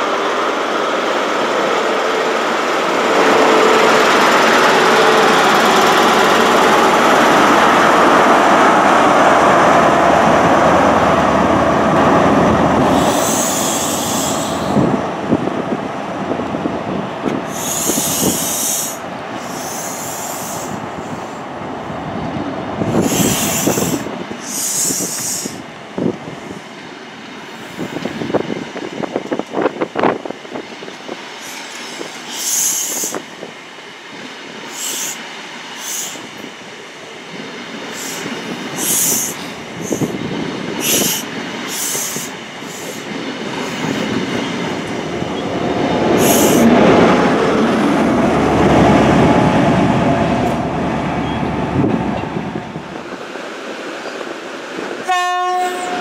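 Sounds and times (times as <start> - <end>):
diesel locomotive engine: 0.0 - 56.0
high hissing: 8.5 - 15.0, 17.4 - 21.5, 22.8 - 25.7, 31.1 - 33.5, 34.6 - 36.8, 37.5 - 49.2.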